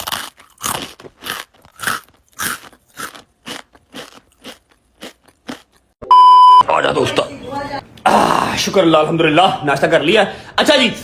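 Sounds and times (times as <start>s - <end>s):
person chewing crunchy food: 0.0s - 6.0s.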